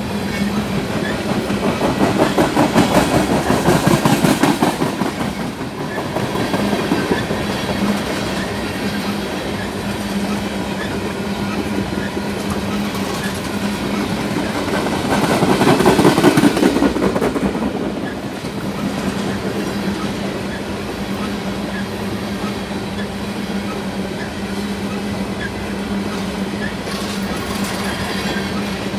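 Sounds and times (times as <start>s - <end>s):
low train hum: 0.0s - 28.9s
train wheels clattering on rails: 0.0s - 28.9s.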